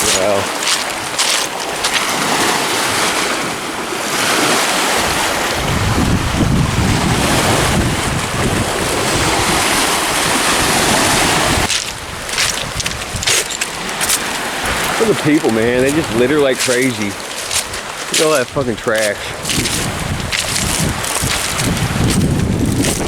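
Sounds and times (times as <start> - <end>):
waves washing on shore: 0.0 - 23.0
wind buffeting microphone: 4.9 - 23.0.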